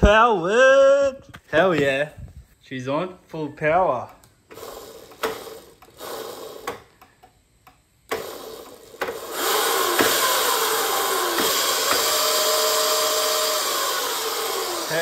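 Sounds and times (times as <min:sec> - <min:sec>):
electric motor whining: 0:04.5 - 0:06.9, 0:08.1 - 0:15.0.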